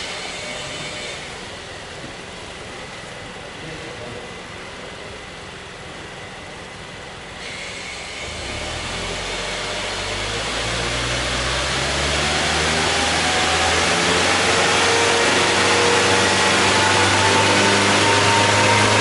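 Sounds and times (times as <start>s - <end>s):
car engine revving: 8.2s - 19.0s.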